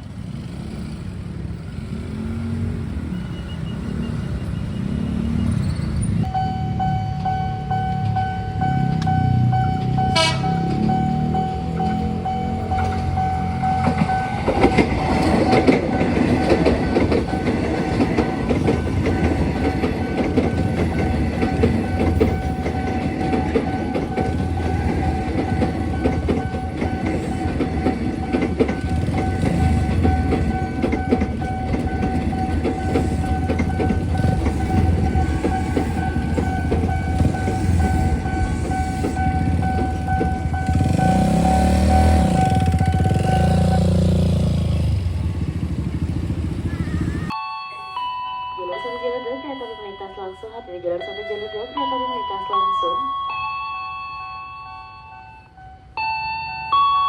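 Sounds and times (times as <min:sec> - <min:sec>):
crossing alarm steady high tone: 0:03.0 - 0:57.0
train wheels clattering: 0:08.0 - 0:47.4.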